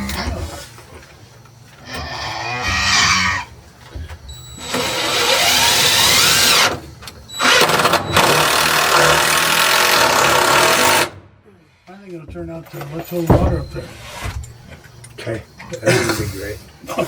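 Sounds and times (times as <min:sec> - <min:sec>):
power tool motor whine: 0:04.6 - 0:11.2.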